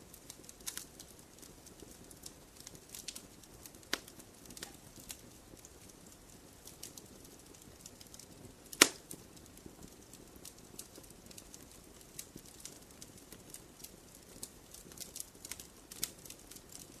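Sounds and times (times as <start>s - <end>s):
wood fire crackling: 0.0s - 17.0s
loud sharp pop of fire: 8.6s - 9.2s.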